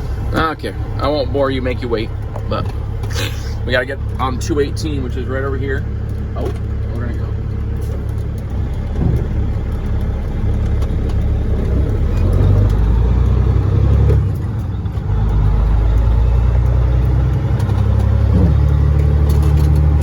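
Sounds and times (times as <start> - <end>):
truck diesel engine accelerating: 0.0 - 20.0.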